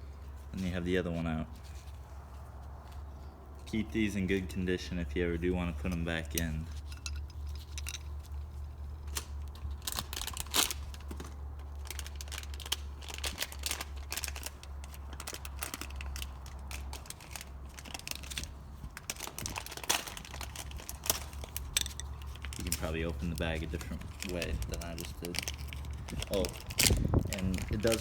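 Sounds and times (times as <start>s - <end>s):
plastic bag crinkling: 6.8s - 28.0s.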